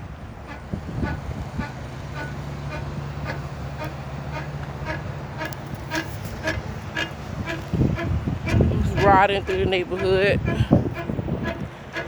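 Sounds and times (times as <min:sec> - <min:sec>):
motor vehicle engine hum: 0:00.0 - 0:12.0
regular ticking: 0:03.2 - 0:12.0.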